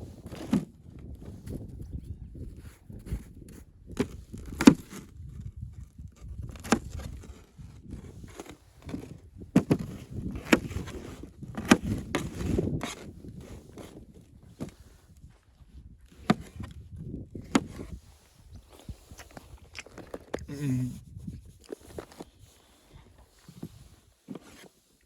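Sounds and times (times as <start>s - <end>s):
wood knocking and scraping: 3.0s - 14.0s, 16.1s - 16.7s, 17.4s - 18.0s.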